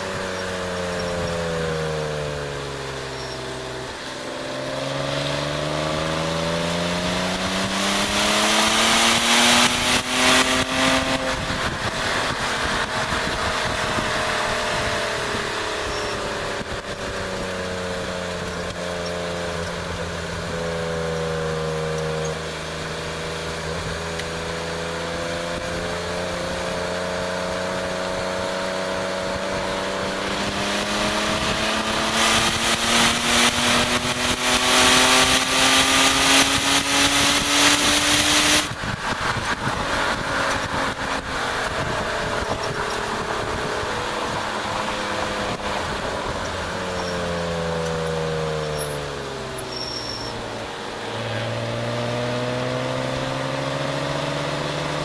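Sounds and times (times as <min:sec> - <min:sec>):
car engine revving: 0:00.0 - 0:55.0
wind buffeting microphone: 0:09.6 - 0:17.8, 0:27.8 - 0:46.9.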